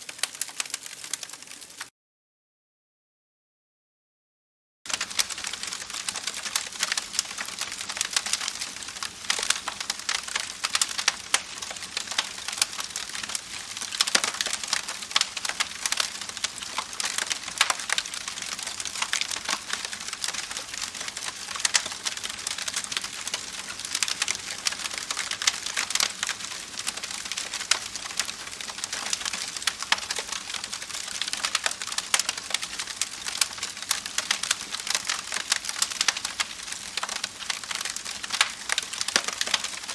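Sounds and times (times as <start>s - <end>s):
campfire crackling: 0.0s - 1.9s, 4.9s - 39.9s.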